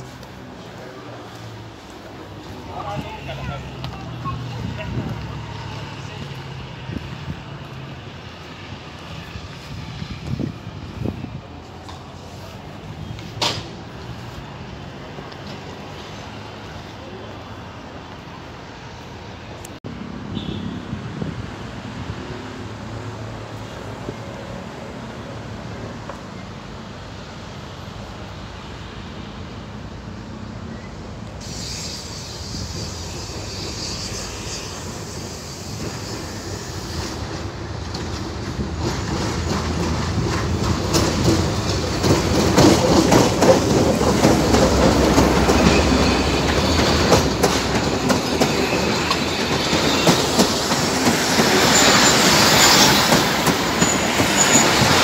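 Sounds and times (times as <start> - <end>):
high wheel squeal: 30.7 - 37.3, 44.4 - 55.0
locomotive engine rumble: 31.2 - 55.0
train wheels clattering over rails: 31.4 - 55.0.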